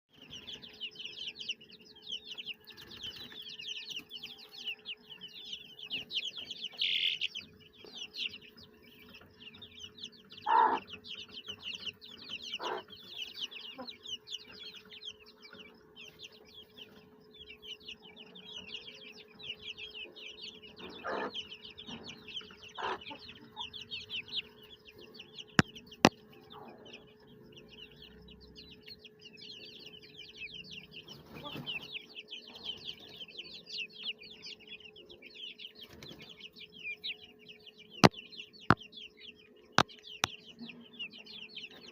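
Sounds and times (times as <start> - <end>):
chicks peeping: 0.1 - 41.9
louder lower chick calls: 6.7 - 7.4, 10.3 - 11.0, 12.4 - 13.0, 20.8 - 21.4, 22.6 - 23.8.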